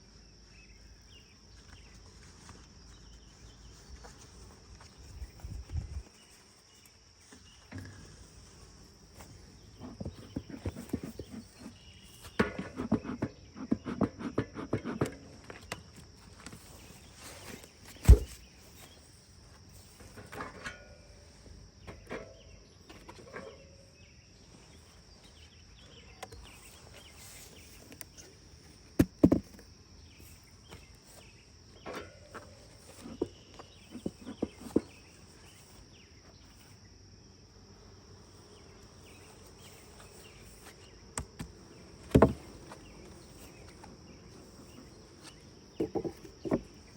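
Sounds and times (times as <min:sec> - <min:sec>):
hive equipment clattering: 0:03.9 - 0:19.0
high insect trill: 0:29.6 - 0:46.9.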